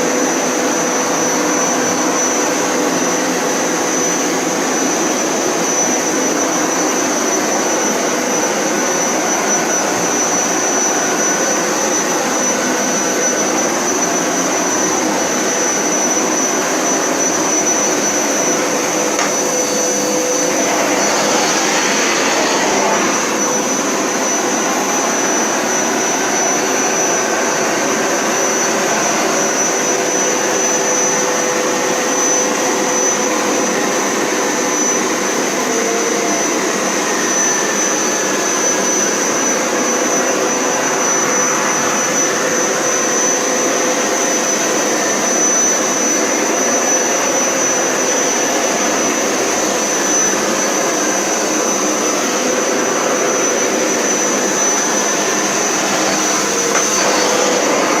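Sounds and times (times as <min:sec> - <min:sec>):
carpet cleaner motor running: 0:00.0 - 0:58.0.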